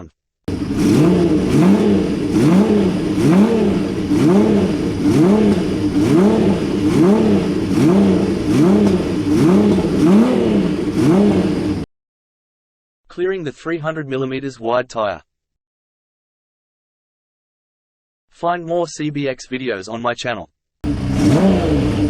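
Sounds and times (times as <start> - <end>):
motorcycle engine revving: 0.5 - 11.9, 20.8 - 22.0.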